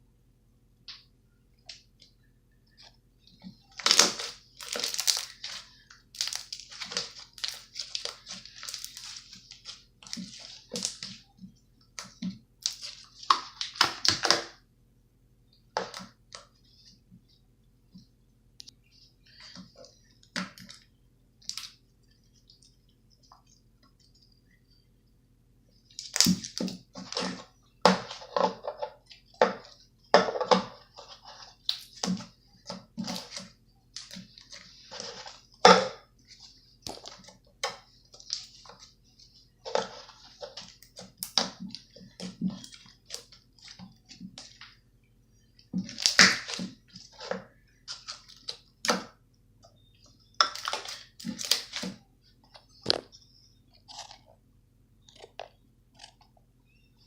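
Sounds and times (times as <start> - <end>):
slime squelching by hand: 3.5 - 14.6, 45.6 - 49.2, 50.3 - 52.1.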